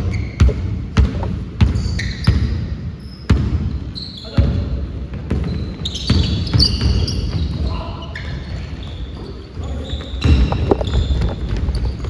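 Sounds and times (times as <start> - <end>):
sneakers squeaking: 0.0 - 12.0
ball bouncing on floor: 0.4 - 2.5, 10.2 - 12.0
players' voices: 6.2 - 11.7.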